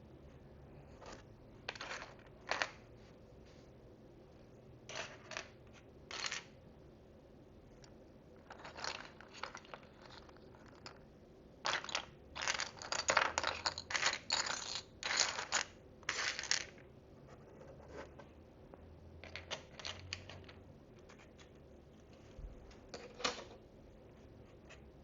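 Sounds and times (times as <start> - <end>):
plastic pieces rustling and clattering: 8.4 - 11.0, 11.6 - 16.8, 19.2 - 20.6.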